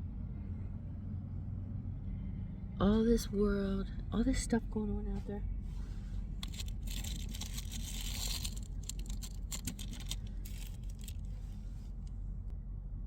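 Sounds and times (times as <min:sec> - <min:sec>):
low steady hum: 0:00.0 - 0:13.0
light clicks and scrapes: 0:05.2 - 0:12.2
bedding rustling and crinkling: 0:05.8 - 0:12.0.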